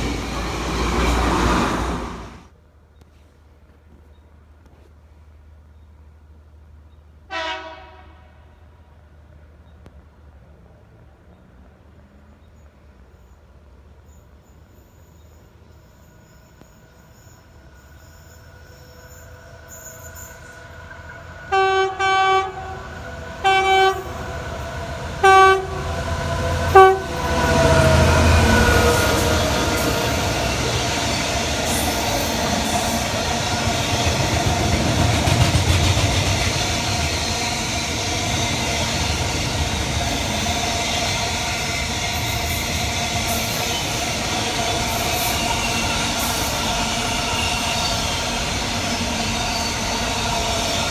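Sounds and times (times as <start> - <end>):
train wheels rumbling on rails: 0.0 - 2.5, 14.5 - 50.9
train air horn blasts: 7.3 - 8.6, 21.4 - 33.2.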